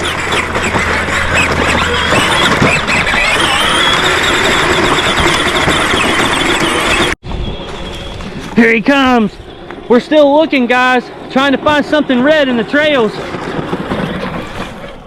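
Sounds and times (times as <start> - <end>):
toy tractor motor whining: 0.0 - 7.2, 12.0 - 15.0
high squeal: 0.0 - 10.7.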